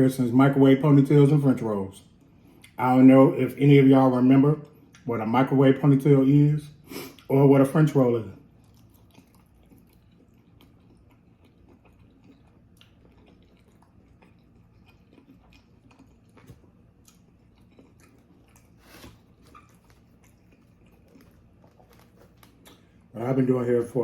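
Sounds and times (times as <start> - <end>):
chewing food: 8.3 - 23.1.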